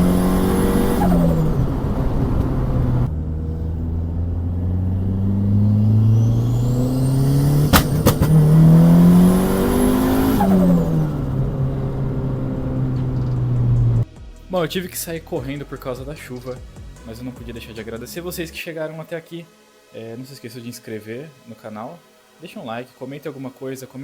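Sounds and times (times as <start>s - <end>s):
car engine accelerating: 0.0s - 14.1s
sharp cracks: 7.7s - 8.5s.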